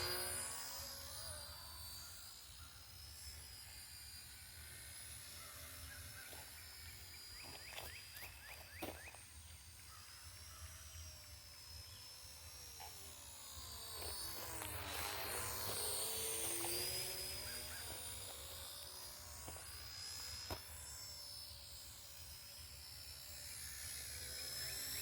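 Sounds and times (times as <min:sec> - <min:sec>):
rc helicopter motor whine: 0:00.0 - 0:25.0.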